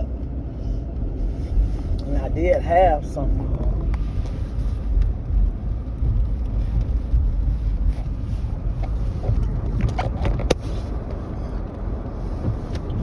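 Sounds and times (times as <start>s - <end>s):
road noise inside a car: 0.0s - 13.0s.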